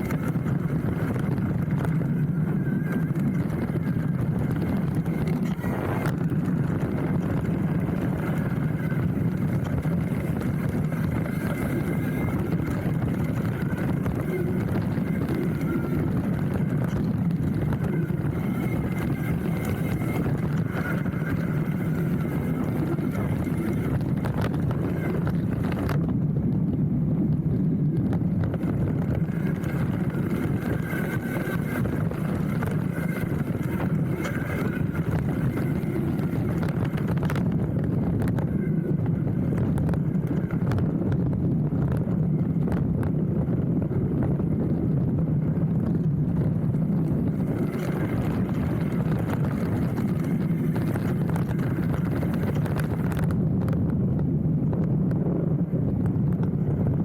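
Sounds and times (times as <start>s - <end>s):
bike clicks and rattles: 0.0s - 26.1s, 28.0s - 43.2s, 45.8s - 55.0s
bike tyre rumble on dirt: 0.0s - 57.0s.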